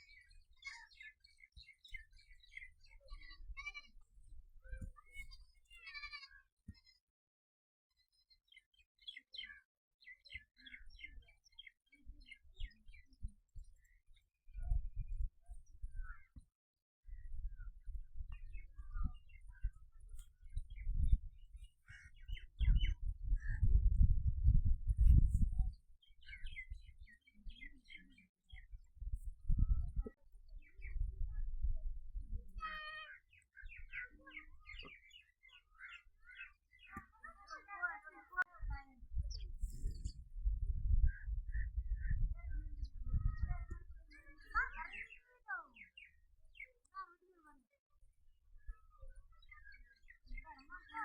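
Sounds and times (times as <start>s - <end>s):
small bird chirping: 0.0s - 7.0s, 17.1s - 31.4s, 32.3s - 47.1s.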